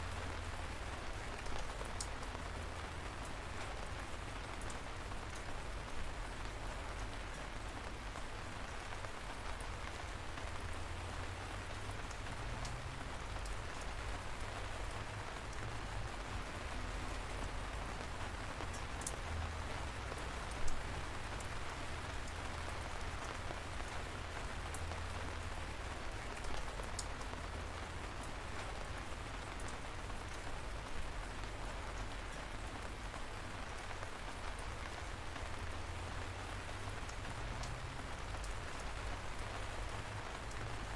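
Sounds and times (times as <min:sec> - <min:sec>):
light rain hissing: 0:00.0 - 0:40.9
raindrop taps: 0:37.0 - 0:40.8.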